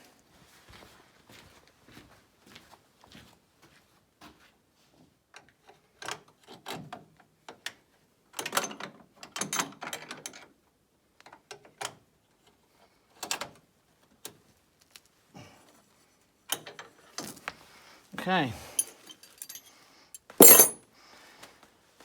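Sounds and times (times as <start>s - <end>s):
metallic clicks and clatter: 20.4s - 20.8s.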